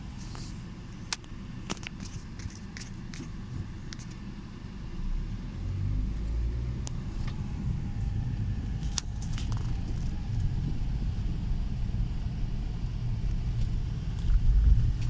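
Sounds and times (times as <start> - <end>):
streetcar rumbling: 0.0 - 15.0.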